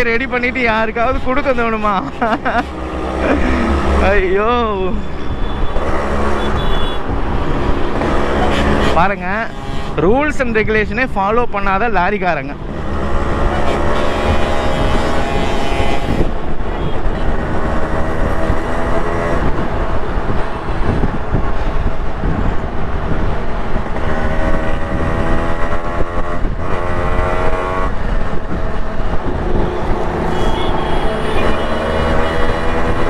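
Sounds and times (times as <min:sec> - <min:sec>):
wind rumble on microphone: 0:12.5 - 0:33.0
two-stroke motorcycle engine revving: 0:24.0 - 0:33.0.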